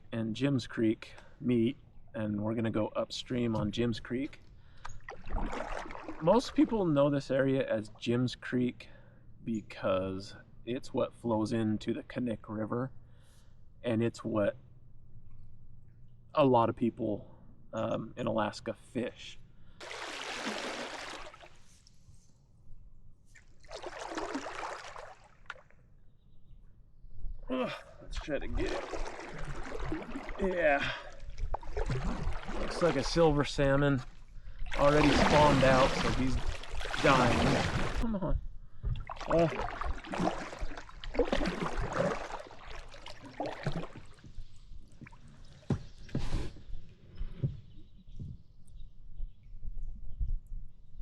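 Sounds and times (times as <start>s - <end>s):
kayak paddle splashing: 4.8s - 6.9s, 19.8s - 21.8s, 23.3s - 25.7s, 28.2s - 38.0s, 39.0s - 44.4s.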